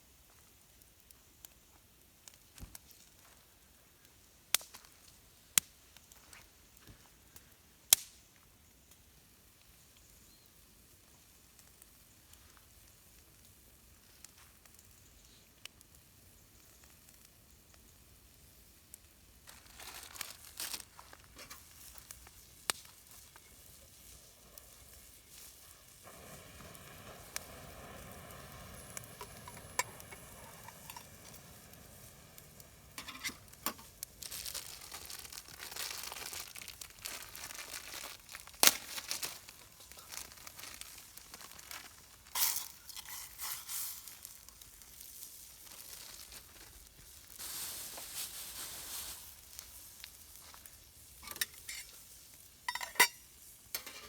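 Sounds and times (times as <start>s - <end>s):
rustling and crinkling handling: 19.4s - 26.1s, 29.2s - 52.1s.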